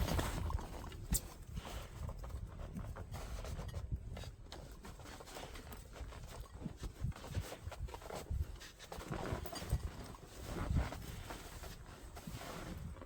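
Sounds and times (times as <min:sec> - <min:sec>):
footsteps on mountain trail: 0:00.0 - 0:00.6
wind rumble on microphone: 0:00.0 - 0:13.0.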